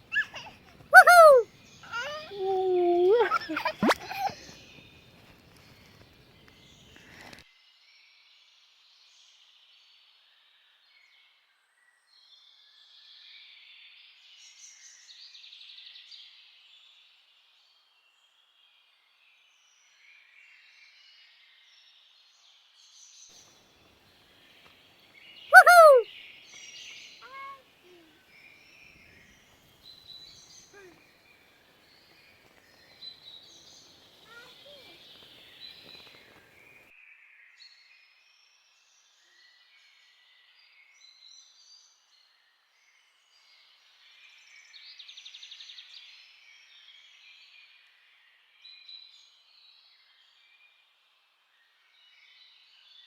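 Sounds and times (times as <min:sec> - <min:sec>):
rising and falling bird call: 0:00.0 - 0:04.5, 0:25.6 - 0:26.0
faint birdsong: 0:00.0 - 0:07.4, 0:23.4 - 0:36.9
songbirds singing faintly: 0:00.0 - 0:53.0.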